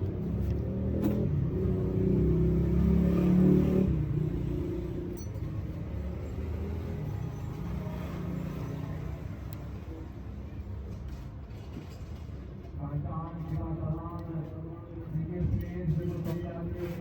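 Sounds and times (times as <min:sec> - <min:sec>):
car engine revving and idling: 0:00.0 - 0:09.6.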